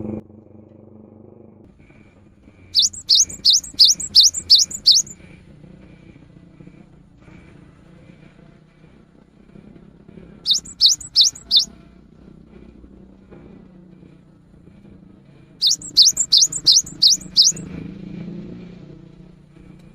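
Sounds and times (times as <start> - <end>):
bird singing sharp rising notes: 2.8 - 5.2, 10.5 - 11.7, 15.6 - 17.6.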